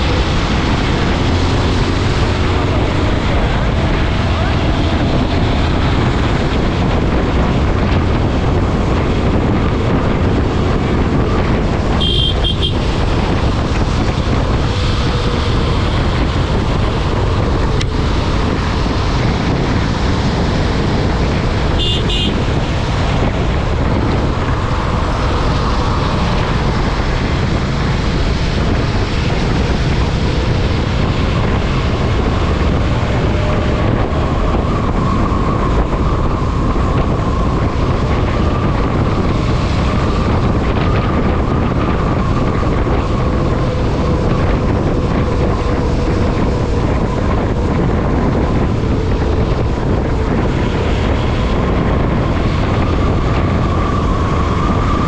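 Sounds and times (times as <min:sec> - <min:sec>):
motorcycle road noise: 0:00.0 - 0:55.0
wind rush on microphone: 0:00.0 - 0:55.0.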